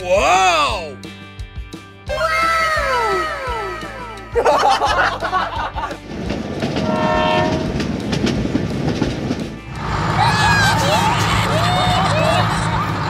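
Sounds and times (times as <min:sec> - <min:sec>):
train rumbling and clattering: 0:05.7 - 0:13.0
loud rush of noise: 0:06.2 - 0:13.0
train horn: 0:06.8 - 0:07.9.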